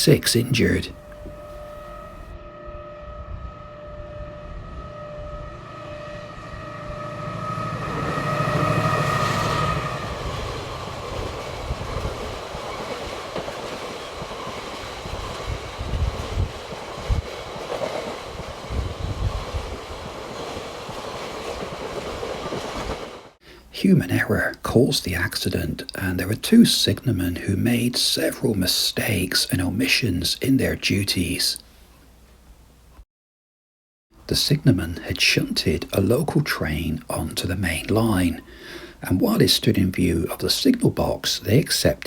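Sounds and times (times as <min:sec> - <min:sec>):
train whine: 0:00.0 - 0:24.2
train wheels rumbling and clattering: 0:07.7 - 0:23.4.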